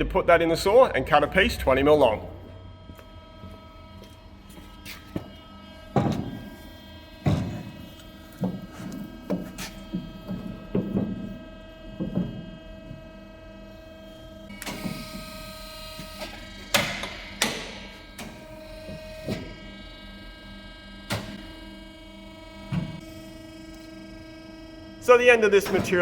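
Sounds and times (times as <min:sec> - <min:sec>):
machine hum: 0:00.0 - 0:26.0
metal clunks and knocks: 0:05.9 - 0:06.6, 0:07.2 - 0:13.0.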